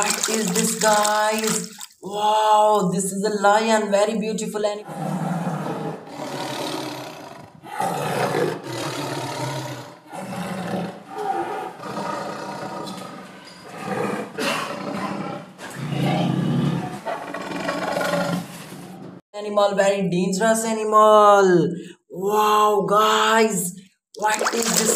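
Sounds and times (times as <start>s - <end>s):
lion roaring: 4.8s - 19.0s.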